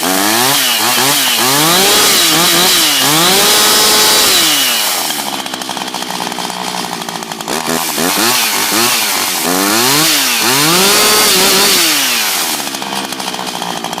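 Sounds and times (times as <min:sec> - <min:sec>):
chainsaw engine idling and revving: 0:00.0 - 0:14.0.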